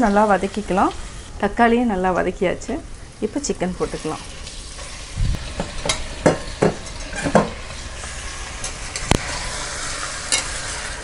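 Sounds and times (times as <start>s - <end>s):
chicken sizzling in hot oil: 0.0s - 1.3s, 3.1s - 11.0s
metal ladle scraping pot: 3.9s - 11.0s.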